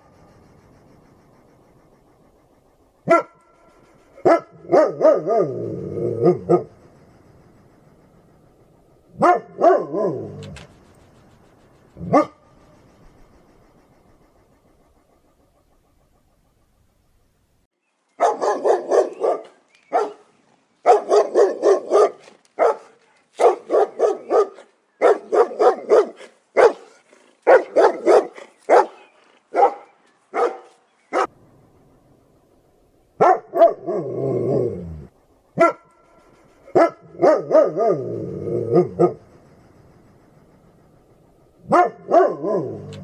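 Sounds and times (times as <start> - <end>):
dog barking: 3.0 - 3.6, 4.2 - 6.7, 9.1 - 10.6, 12.0 - 12.5, 18.2 - 31.3, 33.2 - 34.2, 35.6 - 36.1, 36.7 - 39.2, 41.6 - 43.0.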